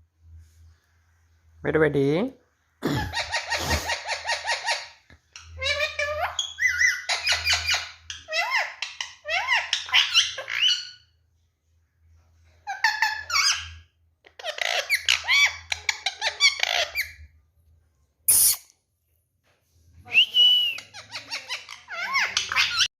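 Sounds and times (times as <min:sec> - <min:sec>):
parakeet chattering: 0:03.1 - 0:11.0, 0:12.7 - 0:17.3, 0:20.8 - 0:22.9.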